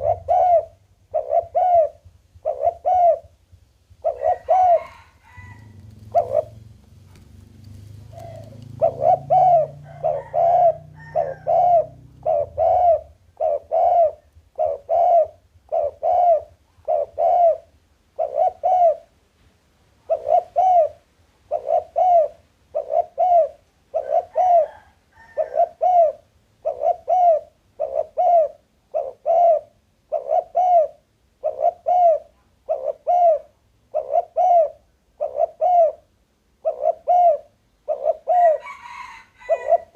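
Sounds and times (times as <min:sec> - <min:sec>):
dove cooing: 0:00.0 - 0:19.1, 0:20.0 - 0:39.9
faint low rumble: 0:00.0 - 0:24.0.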